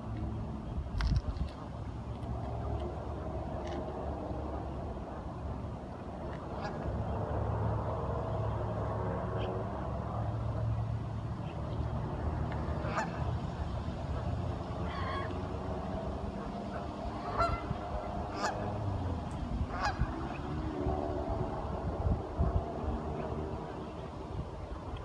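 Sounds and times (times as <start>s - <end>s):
steady low rumble: 0.0s - 25.0s
ducks honking: 12.6s - 13.4s, 14.1s - 19.0s, 19.6s - 20.4s.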